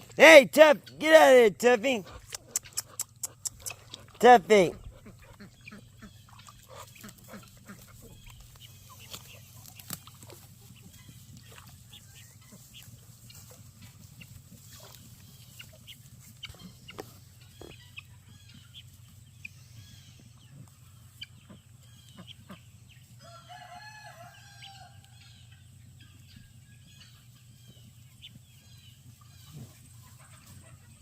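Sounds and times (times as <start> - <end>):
chickens clucking: 1.8 - 31.0
rooster crowing: 23.2 - 25.0.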